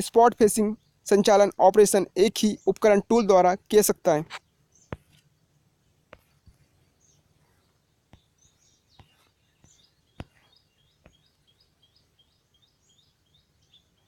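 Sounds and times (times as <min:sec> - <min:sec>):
faint bird chirping: 0:00.4 - 0:03.2, 0:04.1 - 0:14.0.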